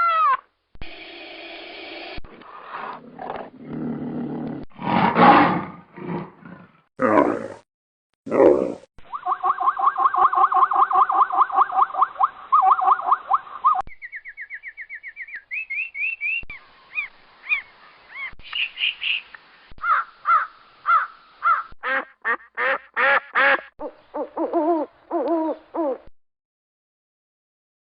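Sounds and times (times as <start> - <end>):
bird calls: 9.1 - 22.0, 23.1 - 26.1.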